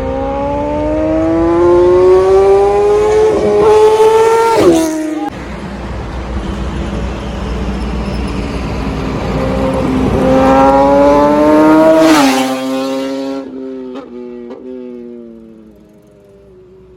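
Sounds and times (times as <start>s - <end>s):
motorcycle engine passing by: 0.0s - 5.8s.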